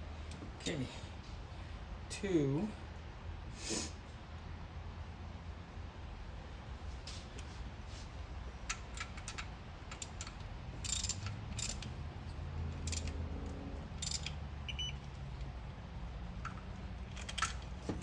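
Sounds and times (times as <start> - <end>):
ratchet wrench clicking: 8.7 - 12.0, 12.6 - 14.9, 16.4 - 17.8.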